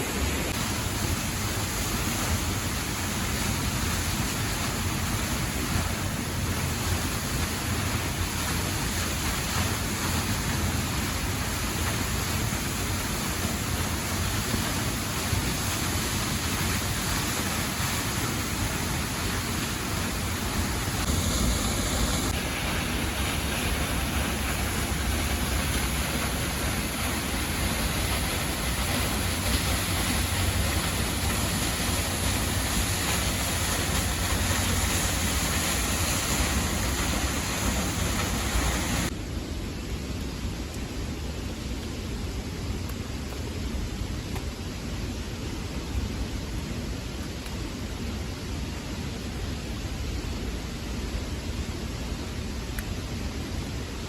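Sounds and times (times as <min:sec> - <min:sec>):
waterfall rushing: 0:00.0 - 0:39.1.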